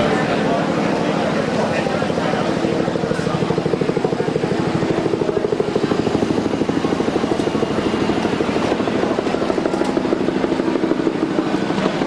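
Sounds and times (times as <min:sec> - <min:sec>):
helicopter rotor chopping: 0:00.0 - 0:12.0.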